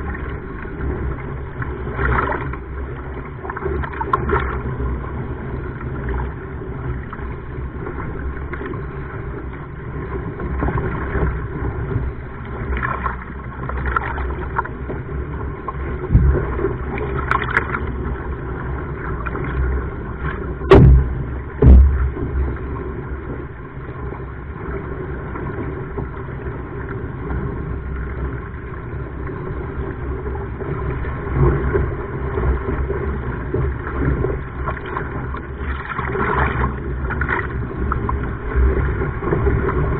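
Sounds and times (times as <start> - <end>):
sea water sloshing: 0.0 - 39.9
sharp loud knocks: 20.7 - 22.2.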